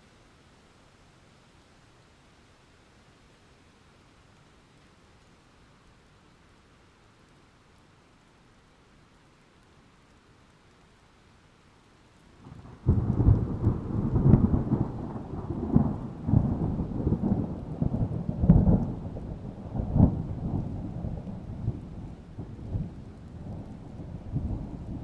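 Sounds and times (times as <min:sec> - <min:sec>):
falling rain: 0:00.0 - 0:25.0
thunder rumbling and cracking: 0:12.4 - 0:25.0.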